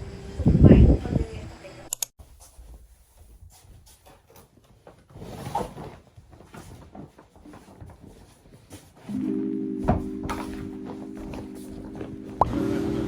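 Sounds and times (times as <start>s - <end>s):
bump and rustle: 2.2s - 12.5s.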